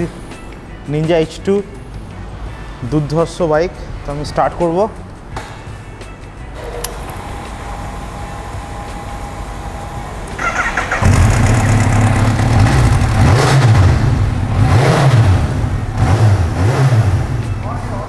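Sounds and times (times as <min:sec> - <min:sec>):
motorcycle engine revving: 0:07.1 - 0:17.7
motorcycle starter cranking: 0:10.3 - 0:14.2.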